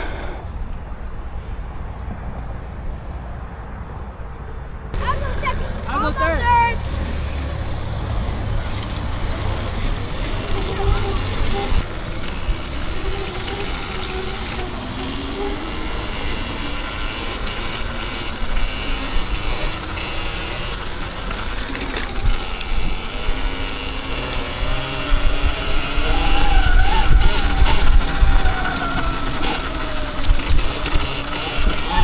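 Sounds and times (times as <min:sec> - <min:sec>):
electric dirt bike motor whining: 0:04.9 - 0:32.0
wind rumble on microphone: 0:24.6 - 0:32.0.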